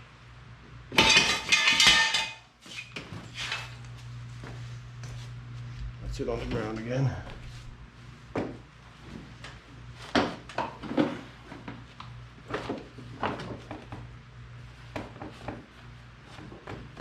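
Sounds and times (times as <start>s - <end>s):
steady low hum: 3.2s - 16.7s.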